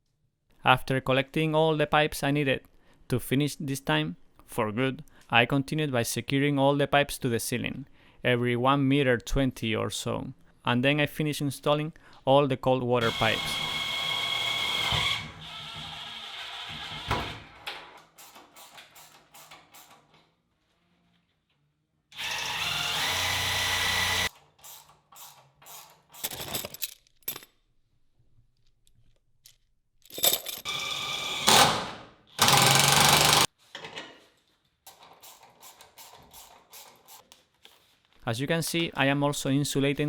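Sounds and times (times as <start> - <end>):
power drill running: 13.0 - 17.6, 22.2 - 25.8, 30.6 - 33.5.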